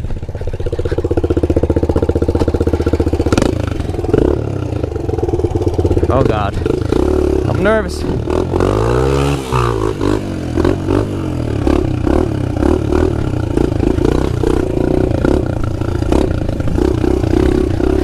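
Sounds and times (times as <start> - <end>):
clatter: 0.0 - 7.0
pit bike engine revving: 0.0 - 18.0.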